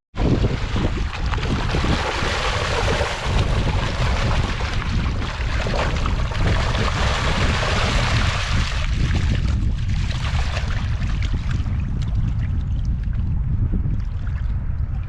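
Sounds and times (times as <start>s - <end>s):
wind buffeting microphone: 0.2s - 15.0s.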